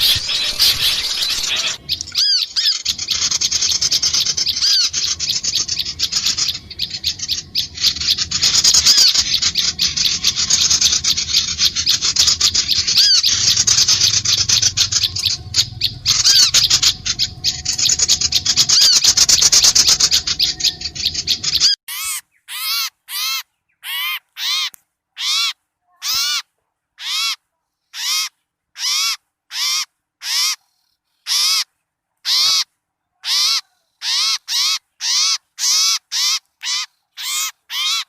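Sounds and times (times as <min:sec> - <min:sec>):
small bird calls chattering: 0:00.0 - 0:25.4
harsh short bird calls: 0:00.0 - 0:27.4.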